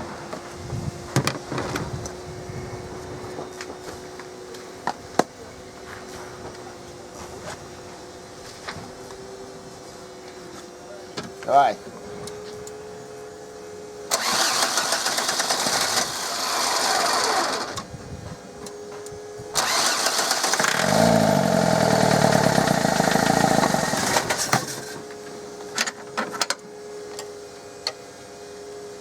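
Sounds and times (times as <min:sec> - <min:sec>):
starter cranking diesel engine: 0:14.1 - 0:17.7, 0:19.6 - 0:25.0.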